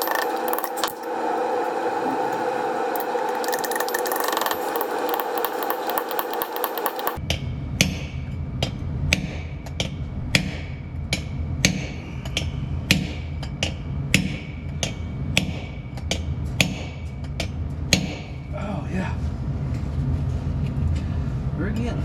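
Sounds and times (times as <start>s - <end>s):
hammer tapping metal: 0.0s - 1.1s, 3.0s - 18.5s.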